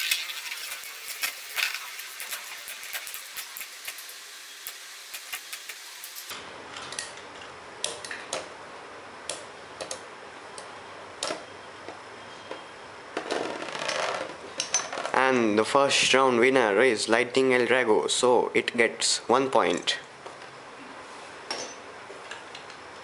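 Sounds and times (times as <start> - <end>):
metal tops clicking together: 0.0 - 6.3
spinning tops whirring: 0.0 - 6.4.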